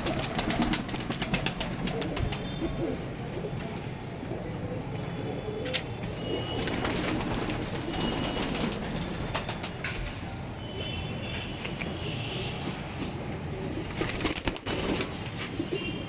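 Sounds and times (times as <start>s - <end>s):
pigeons cooing: 0.0s - 10.2s.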